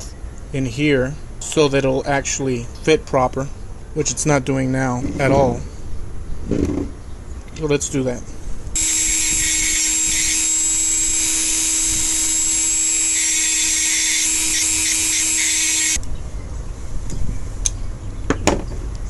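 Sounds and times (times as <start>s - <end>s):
rotary tool shaving wood: 8.8s - 16.0s.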